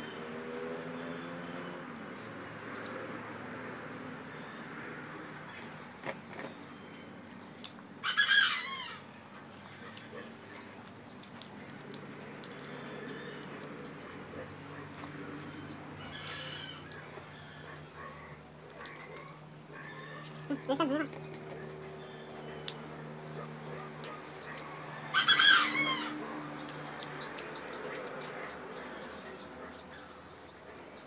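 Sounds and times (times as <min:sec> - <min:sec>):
clicks of food picked apart: 0:09.0 - 0:14.5.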